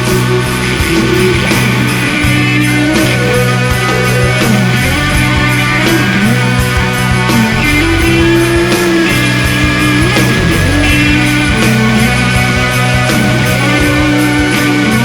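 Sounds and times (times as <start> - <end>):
distorted electric guitars: 0.0 - 15.0
steady drum beat: 0.0 - 15.0.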